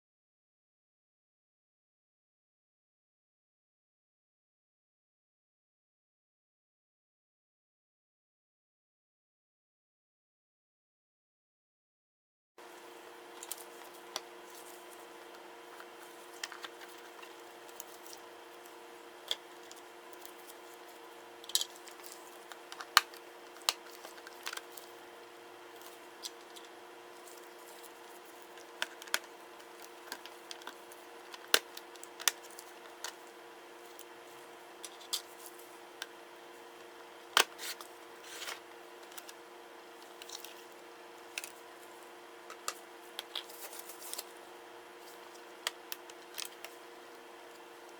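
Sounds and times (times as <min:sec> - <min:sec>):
faint electrical hum: 0:12.6 - 0:47.9
clicks of laptop parts handled: 0:42.5 - 0:44.3.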